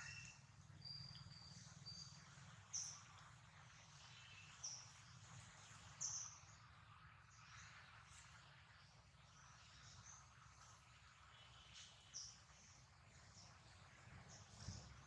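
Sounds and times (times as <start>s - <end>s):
high bird chirps: 0.0s - 2.0s
low steady hum: 0.0s - 15.0s.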